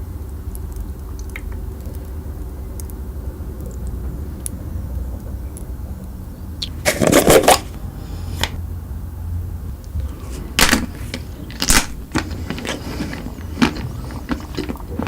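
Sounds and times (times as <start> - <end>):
low steady hum: 0.0 - 15.0
crunchy bites into chocolate: 10.6 - 15.0.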